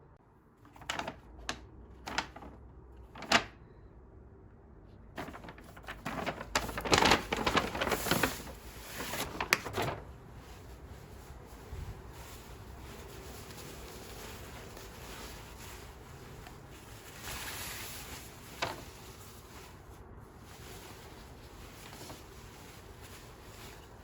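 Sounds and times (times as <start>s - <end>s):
packaging rustling: 5.2s - 24.0s.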